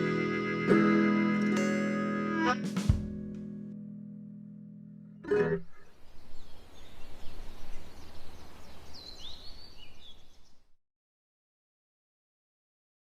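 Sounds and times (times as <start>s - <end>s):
guitar chord ringing out: 0.0s - 5.6s
bird chirping: 5.3s - 10.7s.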